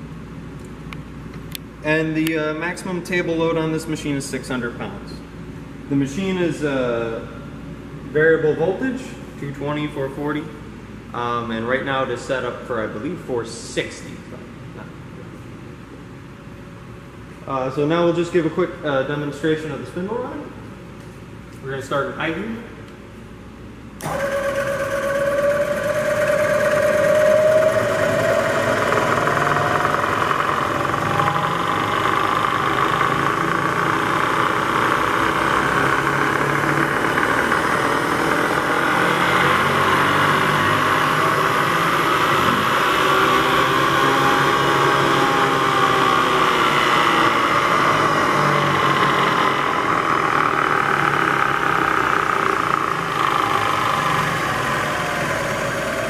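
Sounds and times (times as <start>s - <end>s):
milling machine spindle whine: 24.0s - 56.0s.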